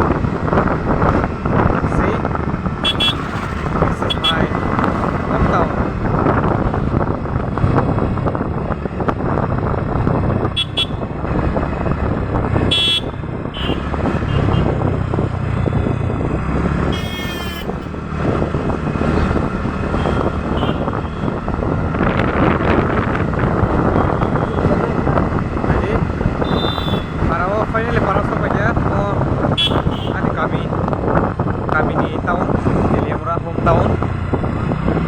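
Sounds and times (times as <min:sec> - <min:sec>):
road traffic: 0:00.0 - 0:35.0
wind noise: 0:00.0 - 0:35.0
vehicle horn toots: 0:02.8 - 0:05.1, 0:10.6 - 0:11.0, 0:12.6 - 0:14.7, 0:16.9 - 0:17.9, 0:19.9 - 0:21.4, 0:26.4 - 0:27.2, 0:29.6 - 0:30.2.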